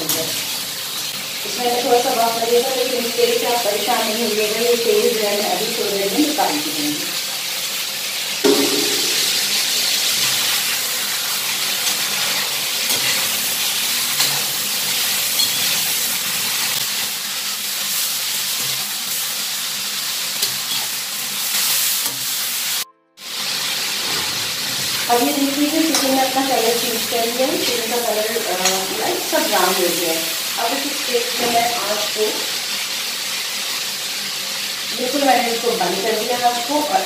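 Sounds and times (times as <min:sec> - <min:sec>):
chicken frying in hot oil: 0:00.0 - 0:37.0
metal spatula scraping and tapping: 0:15.4 - 0:15.8, 0:25.9 - 0:26.2.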